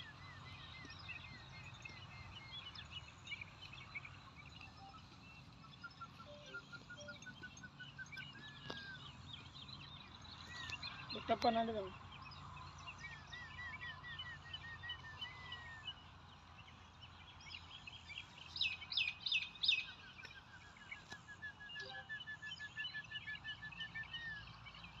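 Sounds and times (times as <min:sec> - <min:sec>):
birds calling: 0:00.0 - 0:25.0
bird whistle: 0:06.0 - 0:09.0, 0:21.2 - 0:24.0.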